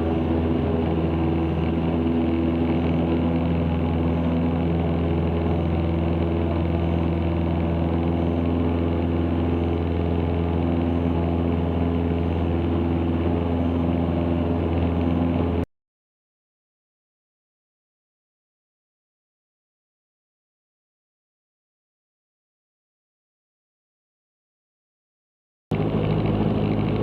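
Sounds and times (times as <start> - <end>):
aircraft engine and propeller drone: 0.0 - 15.7, 25.7 - 27.0.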